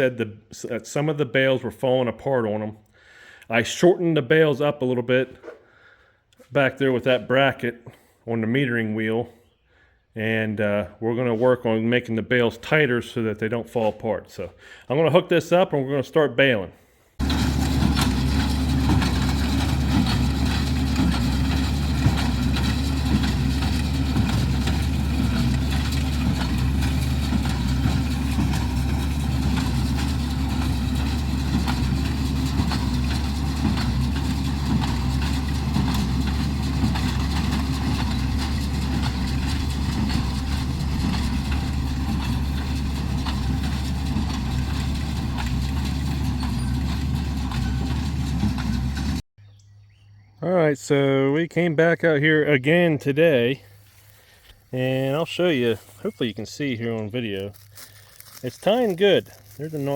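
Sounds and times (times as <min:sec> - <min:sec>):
tractor engine droning: 0:17.2 - 0:49.2, 0:51.9 - 0:59.9.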